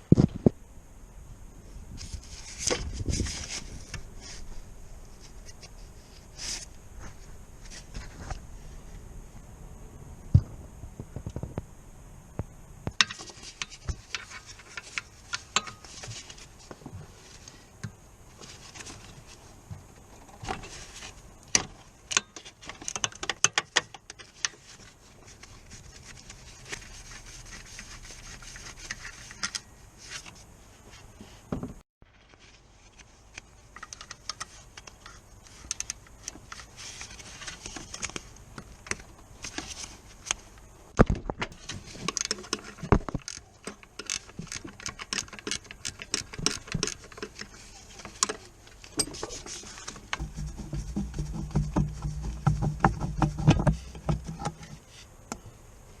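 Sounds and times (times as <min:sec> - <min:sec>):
hand tools and metal parts clinking: 0:13.0 - 0:16.4, 0:41.6 - 0:54.7.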